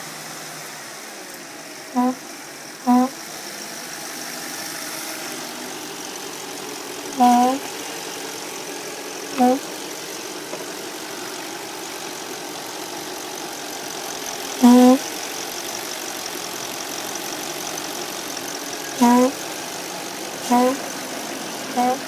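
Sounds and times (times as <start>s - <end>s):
car engine idling: 0.0s - 22.0s
crankcase breather hooting: 1.9s - 3.2s, 6.4s - 8.6s, 9.2s - 22.0s.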